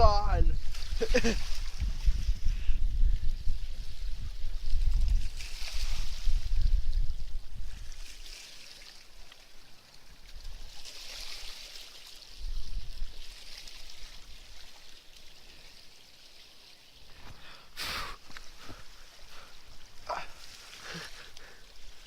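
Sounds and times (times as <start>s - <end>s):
wind buffeting microphone: 0.0s - 8.3s, 12.4s - 13.3s
river water running: 3.2s - 22.0s
rushing hiss: 17.1s - 22.0s.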